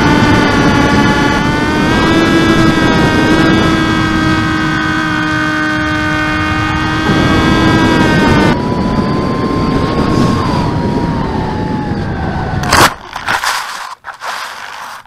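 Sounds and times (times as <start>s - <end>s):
electric motor and propeller whining: 0.0s - 15.0s
scraping on ground: 12.6s - 15.0s.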